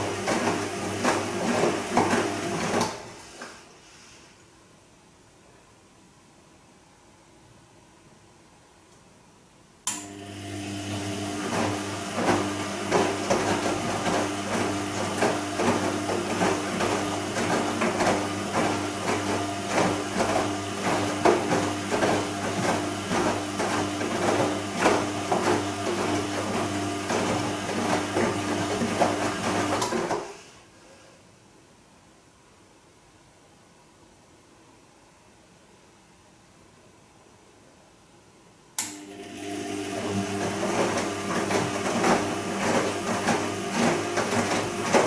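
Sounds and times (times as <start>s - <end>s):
washing machine motor hum: 0.0s - 3.4s, 10.0s - 30.4s, 38.9s - 45.0s.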